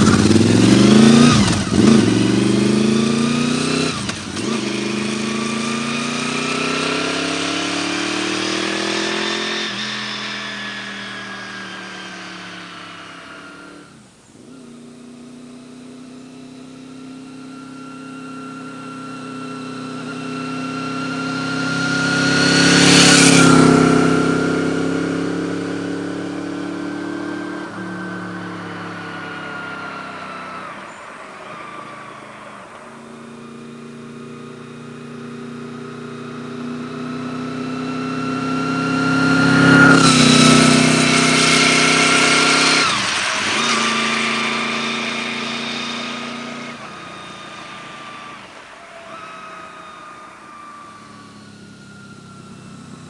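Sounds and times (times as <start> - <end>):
motorcycle accelerating through gears: 0.0 - 53.0.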